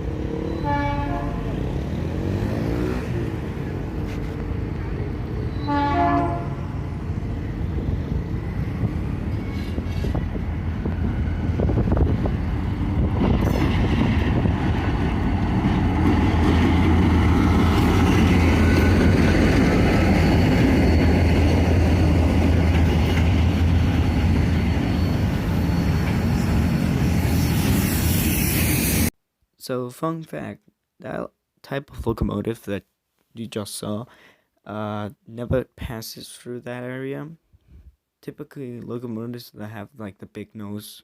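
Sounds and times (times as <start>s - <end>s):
locomotive engine drone: 0.0s - 29.1s
train wheel rumble: 3.3s - 29.1s.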